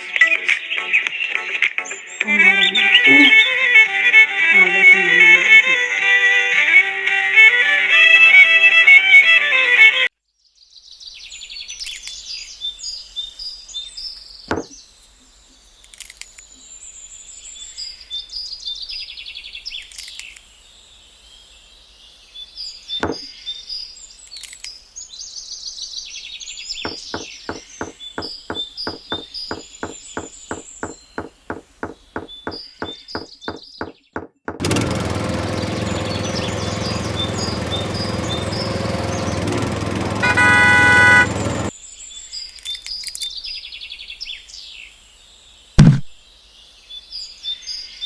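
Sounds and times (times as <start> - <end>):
small birds chirping: 0.0 - 6.1, 10.5 - 34.5, 35.1 - 48.0
fast even knocks: 26.9 - 35.0, 45.8 - 46.1.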